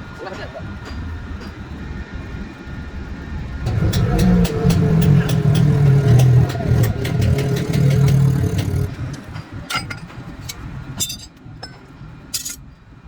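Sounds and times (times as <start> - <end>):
motor humming: 3.6 - 9.3.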